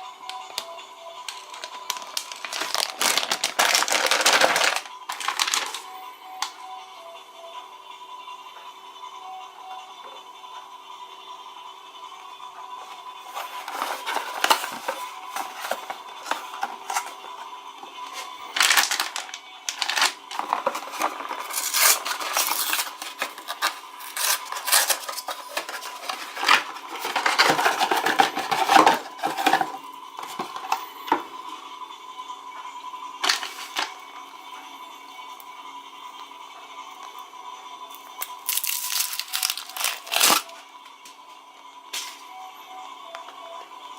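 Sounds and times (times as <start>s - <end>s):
faint hum: 0.0s - 43.9s
plastic packaging crinkling: 1.3s - 6.5s, 13.3s - 17.2s, 18.1s - 31.2s, 33.2s - 34.0s, 38.2s - 40.5s.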